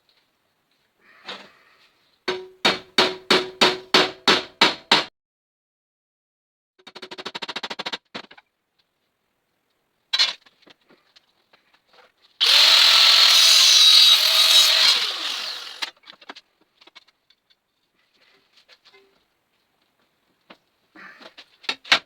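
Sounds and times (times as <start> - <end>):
power tool running: 12.4 - 15.9.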